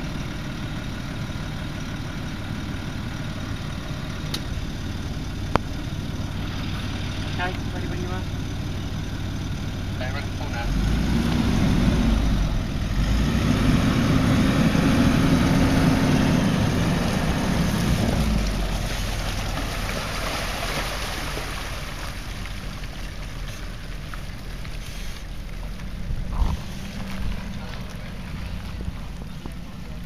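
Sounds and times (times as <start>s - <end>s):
engine pulling under load: 0.0s - 30.0s
wind noise on microphone: 26.0s - 27.5s.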